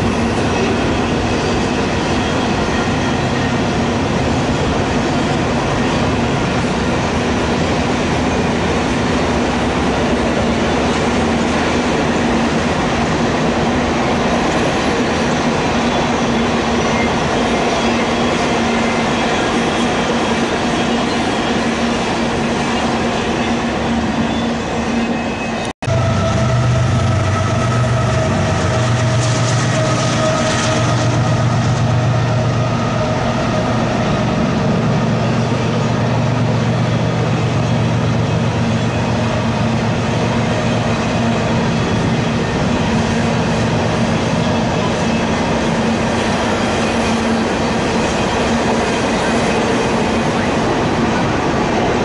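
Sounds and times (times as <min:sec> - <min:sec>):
freight train rumbling past: 0:00.0 - 0:52.0.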